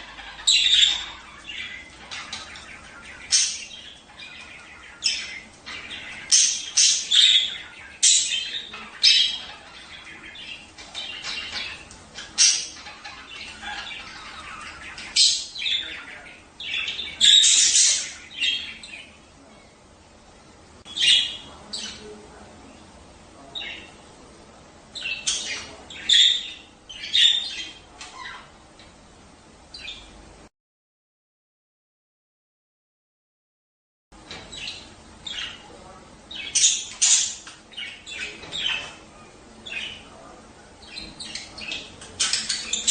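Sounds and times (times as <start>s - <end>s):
budgerigars chattering: 0.0s - 19.2s, 20.9s - 22.2s, 24.9s - 28.6s, 34.3s - 42.9s.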